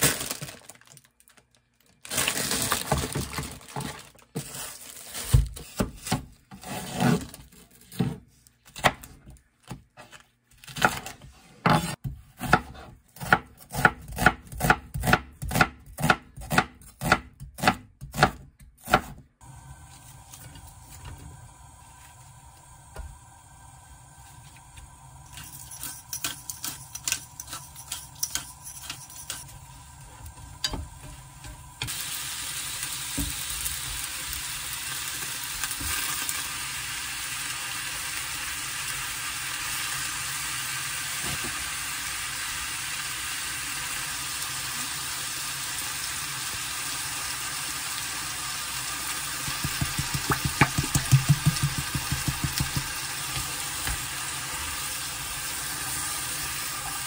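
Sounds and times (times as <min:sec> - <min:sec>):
pork and vegetables sizzling: 0:18.9 - 0:57.0.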